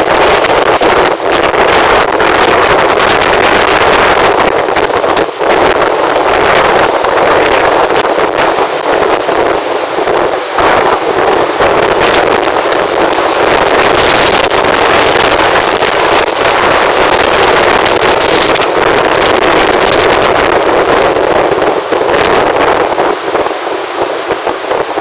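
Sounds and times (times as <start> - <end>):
strong wind on microphone: 0.0 - 25.0.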